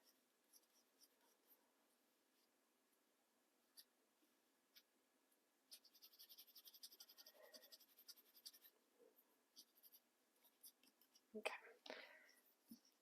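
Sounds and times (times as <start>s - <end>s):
scratching strokes on paper: 0.0s - 1.6s, 5.7s - 8.8s, 9.5s - 11.3s.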